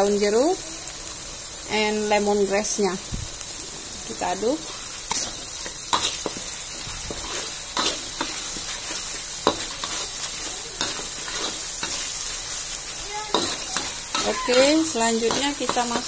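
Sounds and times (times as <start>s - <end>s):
spice paste sizzling in oil: 0.0s - 16.0s
spatula scraping and tapping pan: 5.1s - 12.1s, 13.3s - 16.0s.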